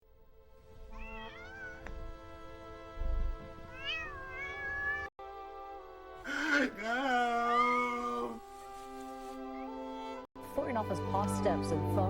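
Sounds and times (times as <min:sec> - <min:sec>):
background music: 0:00.1 - 0:04.3, 0:05.2 - 0:12.0
cat meowing: 0:00.9 - 0:01.9, 0:03.7 - 0:05.1.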